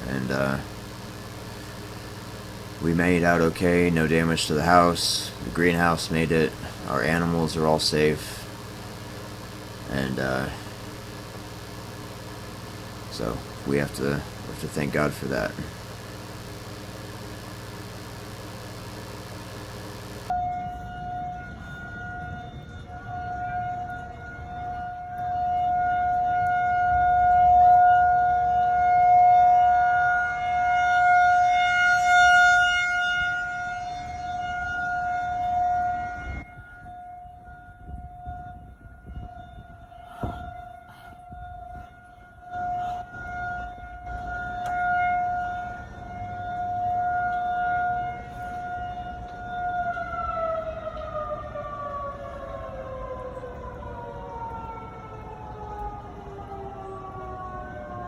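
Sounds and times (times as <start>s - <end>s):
warning siren wailing: 0.0s - 58.0s
wind rumble on microphone: 15.7s - 31.3s, 33.1s - 58.0s.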